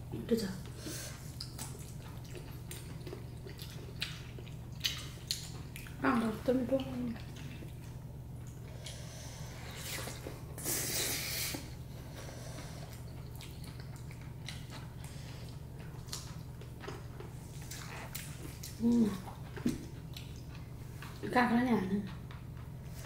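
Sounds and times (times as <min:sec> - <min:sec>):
steady low hum: 0:00.0 - 0:23.0
wet chewing and smacking: 0:01.1 - 0:09.1, 0:12.5 - 0:21.2.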